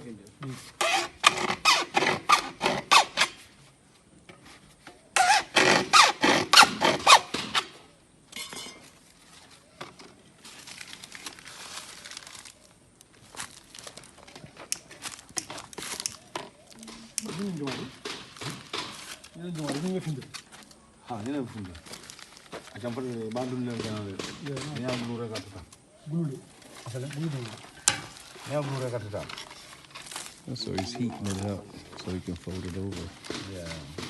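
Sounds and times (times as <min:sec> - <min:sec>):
hand tool rasping plastic pipe: 0:00.6 - 0:03.4, 0:05.2 - 0:07.6.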